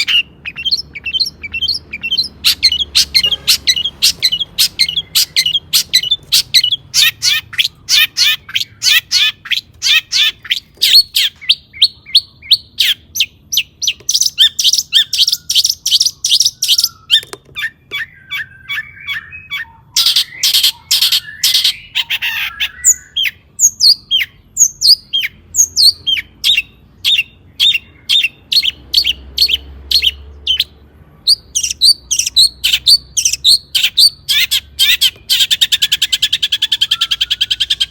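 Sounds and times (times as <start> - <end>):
shrike singing sharp chirps: 0.0 - 13.4.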